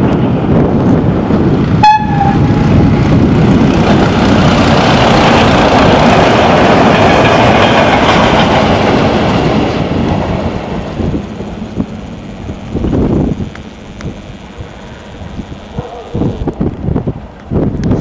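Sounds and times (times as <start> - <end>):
railcar wheels rumbling on rails: 0.0 - 18.0
train horn toot: 1.8 - 2.5.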